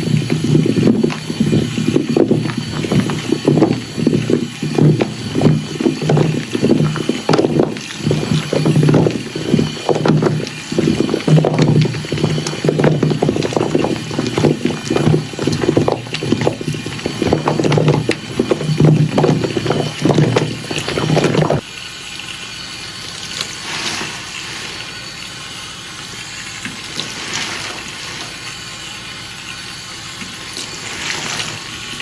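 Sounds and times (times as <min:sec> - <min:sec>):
sponge squelching in water: 0:00.0 - 0:21.6, 0:30.6 - 0:32.0
running water: 0:00.0 - 0:32.0.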